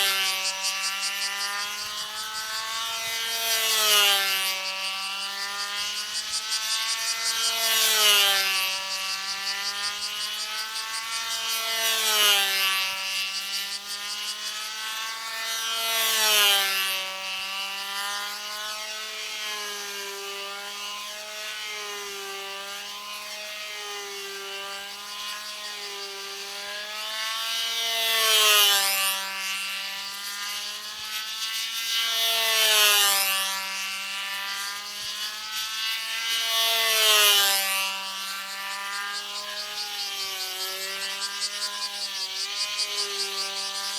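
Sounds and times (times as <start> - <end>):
model airplane engine buzzing: 0.0 - 43.9.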